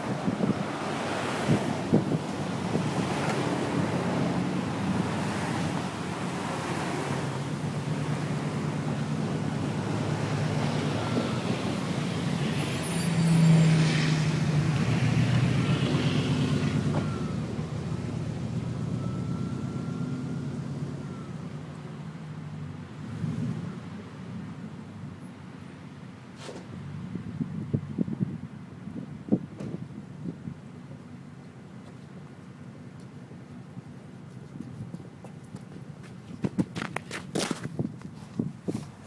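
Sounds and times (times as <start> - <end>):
truck engine running: 0.0 - 12.7.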